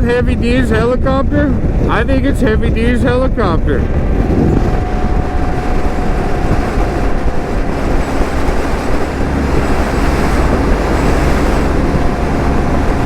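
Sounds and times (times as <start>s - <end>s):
wind rush on microphone: 0.0s - 13.0s
road noise: 3.6s - 13.0s
motorcycle engine: 3.8s - 13.0s.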